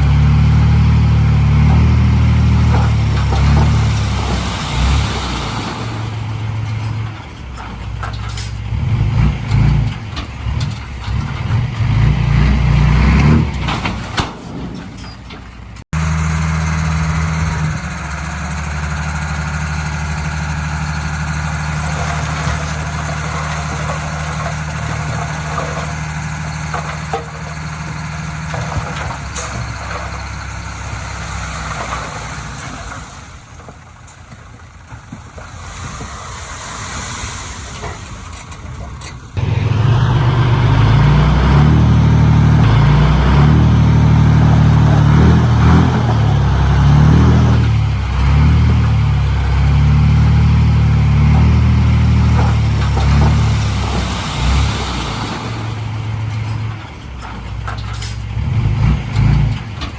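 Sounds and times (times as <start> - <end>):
close engine working under load: 0.0 - 59.9
heavy diesel engines running: 0.0 - 59.9.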